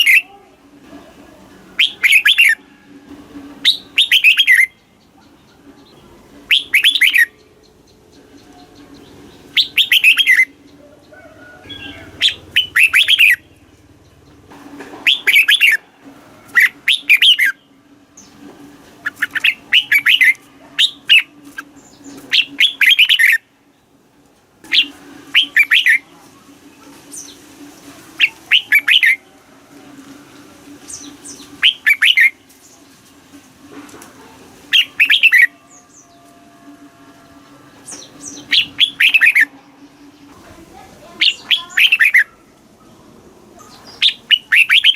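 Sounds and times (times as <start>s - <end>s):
bulbul singing: 0.0s - 0.4s, 1.7s - 2.7s, 3.6s - 15.8s, 16.4s - 24.0s, 24.6s - 26.1s, 28.2s - 29.3s, 30.3s - 32.8s, 34.7s - 43.0s, 43.6s - 44.9s.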